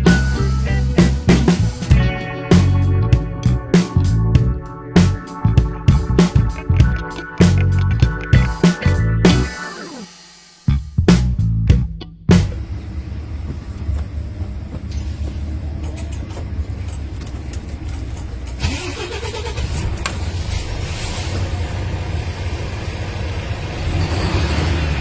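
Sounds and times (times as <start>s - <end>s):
air hiss: 9.5s - 10.7s
diesel engine idling: 12.6s - 25.0s.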